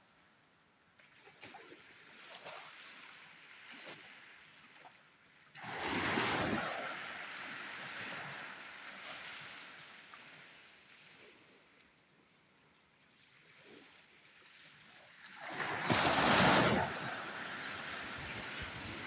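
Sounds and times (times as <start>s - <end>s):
sea wave breaking on shore: 5.6s - 9.8s, 15.3s - 19.0s.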